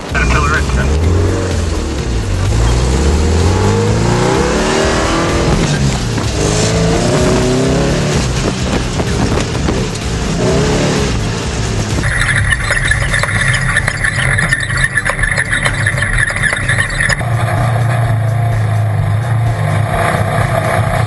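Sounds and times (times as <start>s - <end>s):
race car engine revving: 0.0s - 21.0s
tyre and wind noise: 4.9s - 10.9s.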